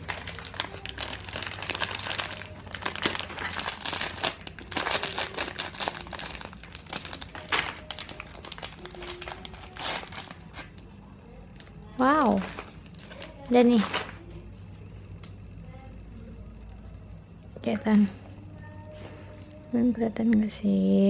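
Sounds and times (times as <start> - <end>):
plastic wrappers crinkling: 0.0 - 11.0, 11.6 - 15.5.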